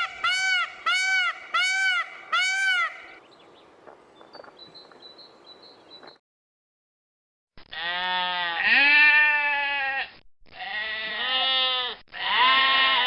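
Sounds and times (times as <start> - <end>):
sheep or goat bleating: 7.7 - 13.0.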